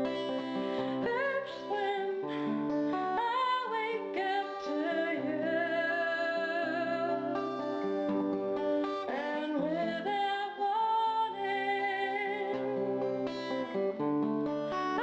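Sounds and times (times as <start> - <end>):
woman singing slow melody: 0.0 - 7.6, 9.1 - 13.1
acoustic guitar: 0.0 - 15.0.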